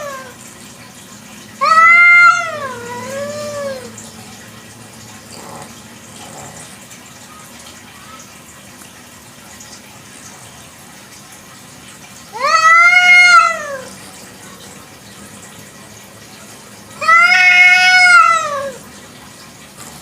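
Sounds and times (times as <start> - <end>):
cat meowing: 0.0 - 0.4, 1.6 - 3.9, 12.3 - 14.0, 17.0 - 18.8.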